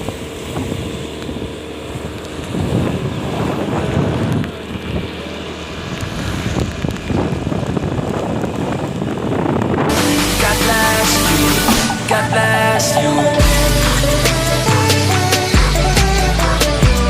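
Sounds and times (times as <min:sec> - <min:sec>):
wind buffeting microphone: 0:00.0 - 0:09.9
motorcycle engine and road noise: 0:00.0 - 0:17.0
loud music: 0:09.9 - 0:17.0.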